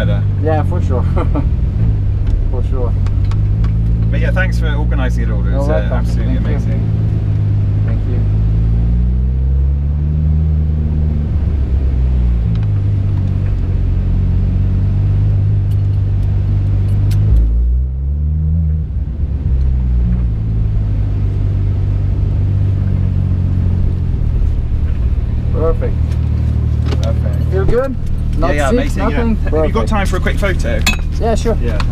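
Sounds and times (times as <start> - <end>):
car engine running: 0.0 - 31.9.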